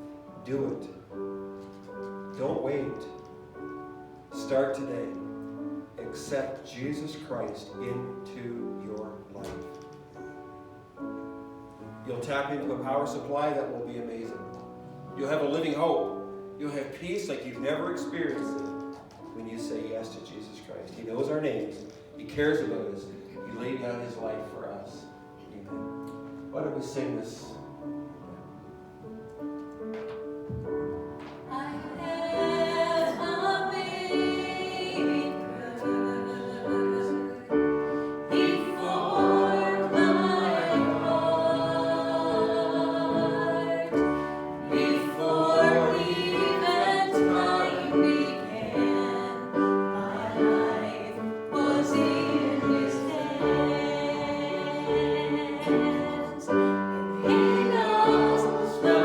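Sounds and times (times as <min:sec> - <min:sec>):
instrumental accompaniment: 0:00.0 - 0:59.0
congregation singing a hymn: 0:31.0 - 0:59.0.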